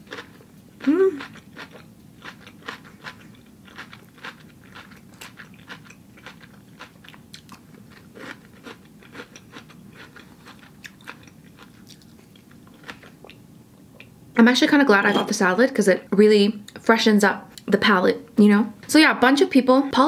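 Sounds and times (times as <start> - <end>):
person chewing crunchy salad: 0.0 - 14.1.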